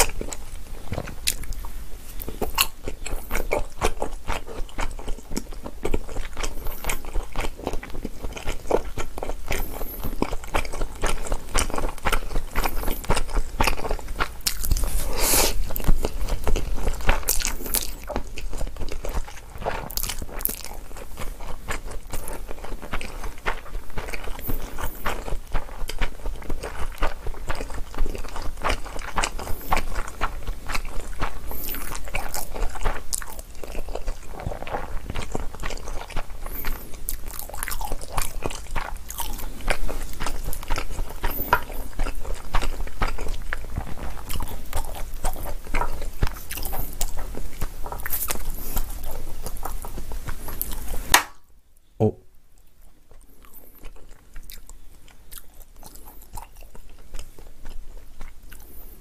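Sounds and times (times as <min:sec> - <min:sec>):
chewing and smacking noodles: 0:00.0 - 0:51.3, 0:52.6 - 0:59.0
slurping noodles: 0:14.8 - 0:15.8.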